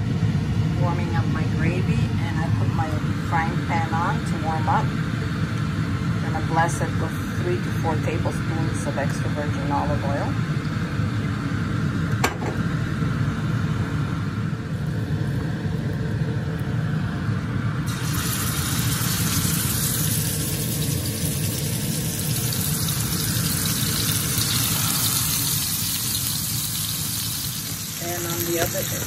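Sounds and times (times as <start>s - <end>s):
low hum: 0.0s - 29.0s
meat sizzling in a frying pan: 17.9s - 29.0s.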